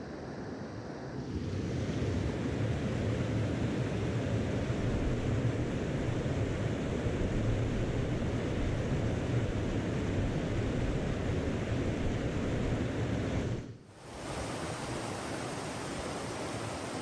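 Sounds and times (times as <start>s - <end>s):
mountain stream rushing: 14.0s - 17.0s.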